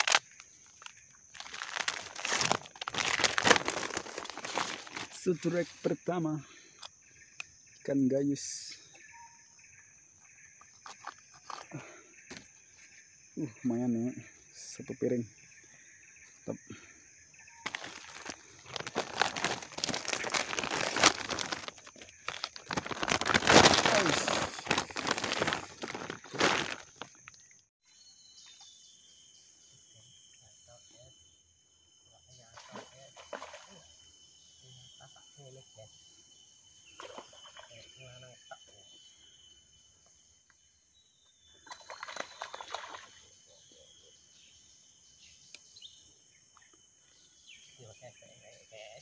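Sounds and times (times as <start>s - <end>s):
irregular crackles: 0.0s - 5.5s, 17.6s - 27.4s
plastic sack crinkling: 0.0s - 5.5s, 17.6s - 27.4s
high insect drone: 0.0s - 49.0s.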